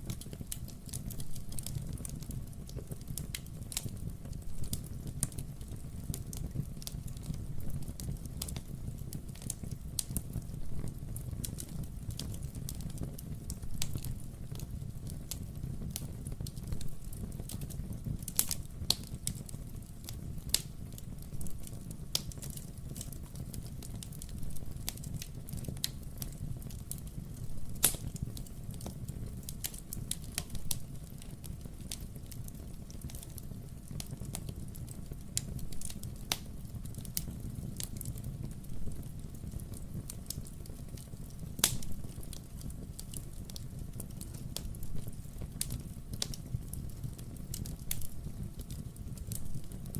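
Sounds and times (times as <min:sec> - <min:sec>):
fireplace crackling: 0:00.0 - 0:49.9
logs popping and snapping: 0:41.6 - 0:41.9.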